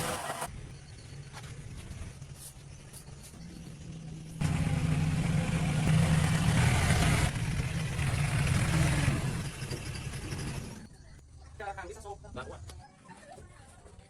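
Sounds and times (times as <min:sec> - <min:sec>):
engine running: 0:03.8 - 0:10.9.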